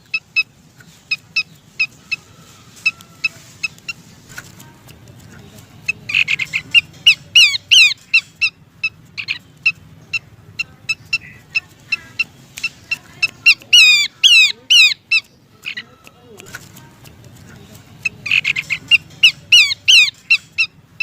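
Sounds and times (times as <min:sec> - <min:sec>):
babbler chip notes and falling calls: 0:05.8 - 0:10.3, 0:10.9 - 0:15.9, 0:18.0 - 0:20.7.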